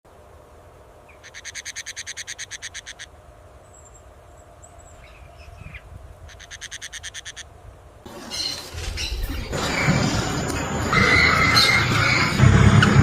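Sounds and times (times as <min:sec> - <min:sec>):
bird trilling: 0:01.1 - 0:03.1, 0:04.9 - 0:07.5.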